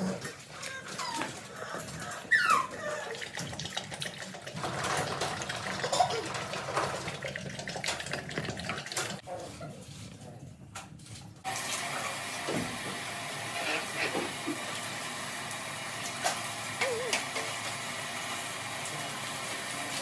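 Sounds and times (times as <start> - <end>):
puppies whining: 0.0 - 3.4.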